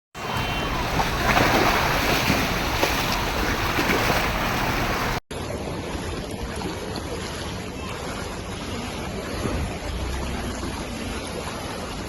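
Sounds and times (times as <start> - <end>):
floodwater rushing and splashing: 0.2 - 12.0.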